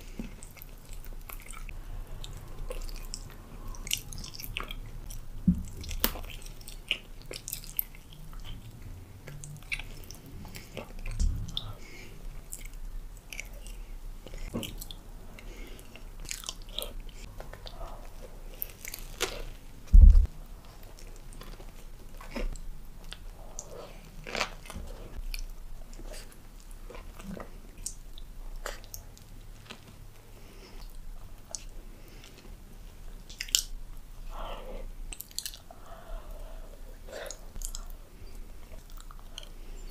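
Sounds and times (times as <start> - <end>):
crunchy chewing: 0.0 - 8.6, 9.2 - 19.6, 34.5 - 39.9
loud low thump: 19.9 - 20.3
wet mouth sounds: 19.9 - 20.3.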